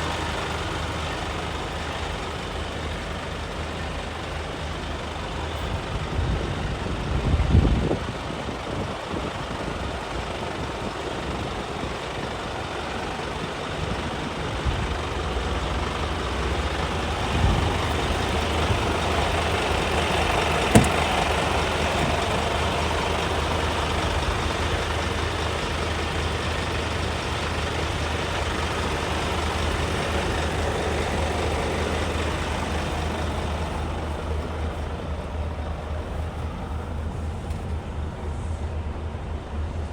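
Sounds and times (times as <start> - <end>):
truck diesel engine running: 0.0 - 38.6
short knocks: 20.7 - 22.4.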